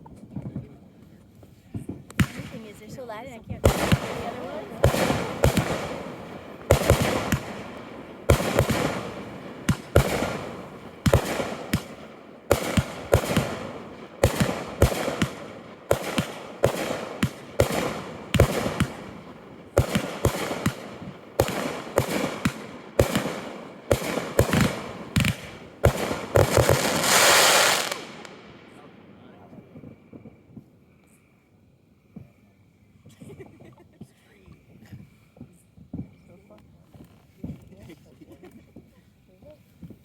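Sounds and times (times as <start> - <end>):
fireworks crackling: 0.0 - 31.1, 33.0 - 40.0
firework bangs: 1.7 - 30.7.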